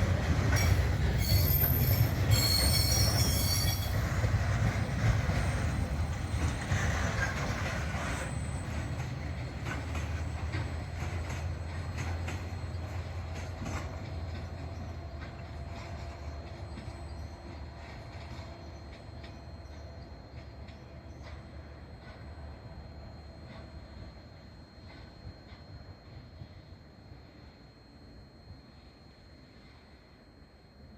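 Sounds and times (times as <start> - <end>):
train rumbling on rails: 0.0 - 30.9
wheel squeal: 0.5 - 4.3.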